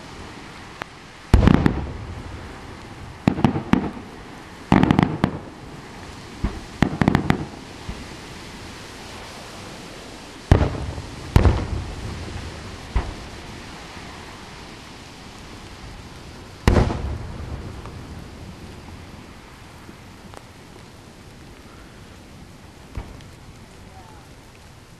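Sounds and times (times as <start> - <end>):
steady hiss: 0.0 - 24.9
crackling pops: 0.7 - 8.1, 10.5 - 13.7, 15.3 - 24.9
firework shells bursting: 1.3 - 5.6, 6.4 - 8.0, 10.5 - 13.4, 16.6 - 18.2.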